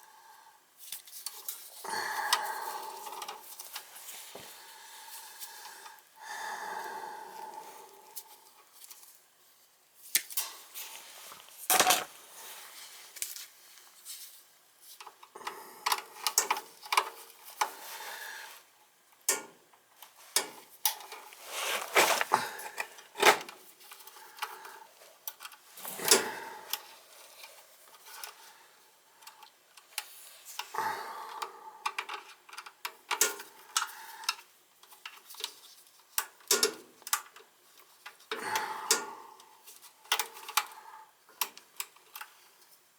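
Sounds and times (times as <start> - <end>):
hand tools clicking and clattering: 11.7 - 12.1, 21.5 - 23.5.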